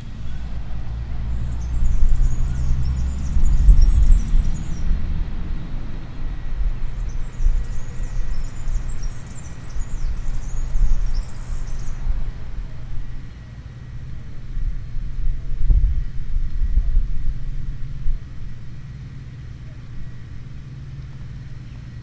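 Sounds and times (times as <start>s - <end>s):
low rumble: 0.0s - 13.4s
small birds chirping: 0.0s - 13.6s.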